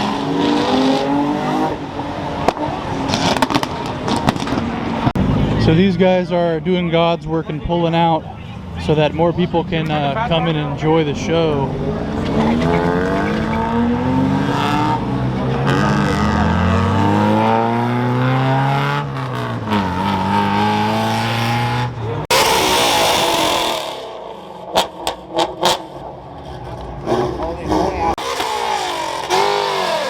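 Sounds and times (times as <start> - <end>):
car engine revving: 0.0 - 6.2, 8.6 - 30.0
sharp cracks: 2.4 - 4.7.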